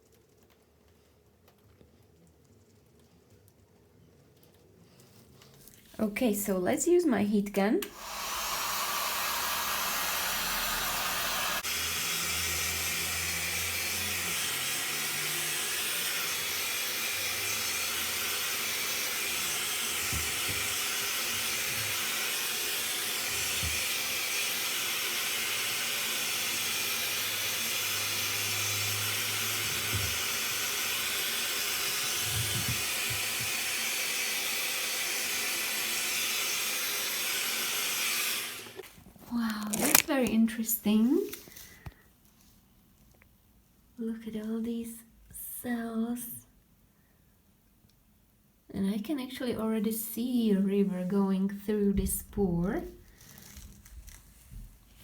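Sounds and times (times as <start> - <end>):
heat gun blowing hot air: 7.8 - 38.9, 39.6 - 40.4.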